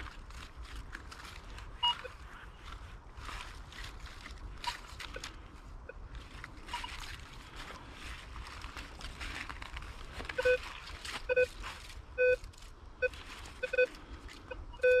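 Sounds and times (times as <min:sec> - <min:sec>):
coil rustling: 0:00.0 - 0:15.0
footsteps over ground: 0:00.0 - 0:15.0
metal detector beeps: 0:01.8 - 0:02.2, 0:06.7 - 0:07.0, 0:10.4 - 0:11.6, 0:12.2 - 0:15.0.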